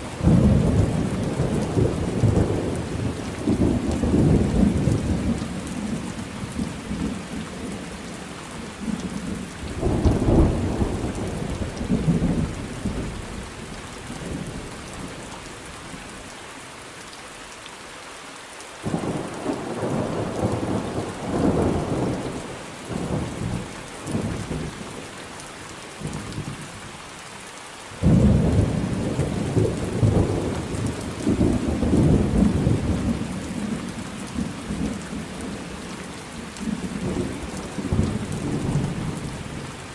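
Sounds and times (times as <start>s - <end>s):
steady rain falling: 0.0s - 39.9s
deep rolling thunder: 0.2s - 5.4s, 18.8s - 24.8s, 28.0s - 35.6s.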